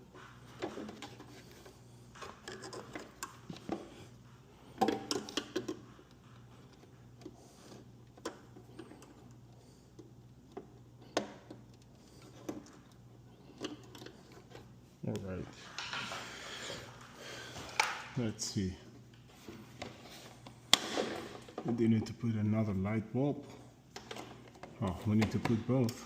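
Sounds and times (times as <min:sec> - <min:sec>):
steady low hum: 0:00.0 - 0:26.0
tools clicking and rubbing: 0:00.1 - 0:14.7.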